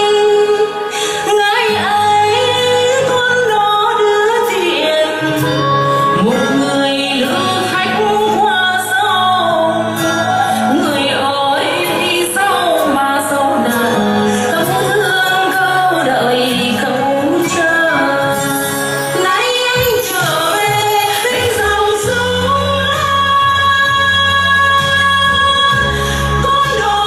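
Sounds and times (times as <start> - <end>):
woman singing: 0.0 - 27.0.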